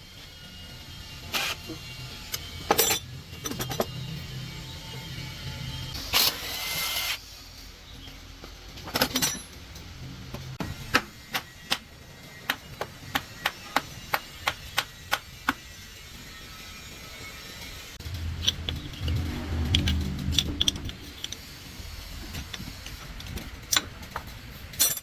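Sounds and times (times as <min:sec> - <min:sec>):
hammer striking metal: 0:10.6 - 0:15.8.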